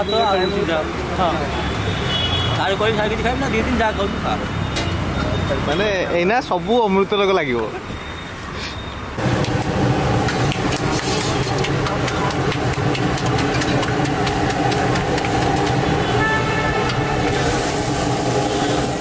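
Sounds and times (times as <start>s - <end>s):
hot oil sizzling: 9.2s - 19.0s
mechanical hum: 9.2s - 19.0s.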